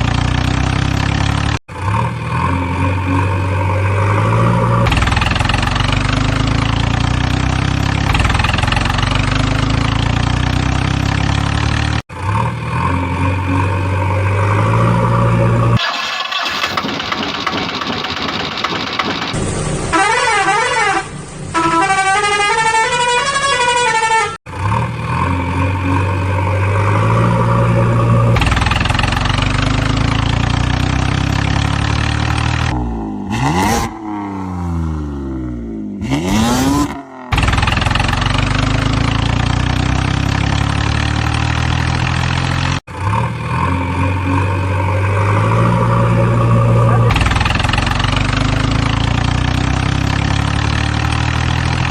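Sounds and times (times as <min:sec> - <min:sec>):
engine running: 0:00.0 - 0:20.0, 0:24.5 - 0:51.9
engine pitch sweeping: 0:00.0 - 0:20.1, 0:24.5 - 0:51.9
siren-like wailing tones: 0:25.6 - 0:28.8, 0:43.6 - 0:48.3.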